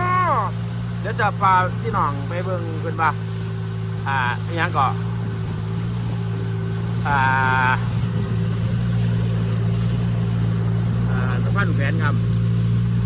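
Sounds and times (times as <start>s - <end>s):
person calling out: 0.0s - 0.6s
boat engine humming: 0.0s - 13.0s.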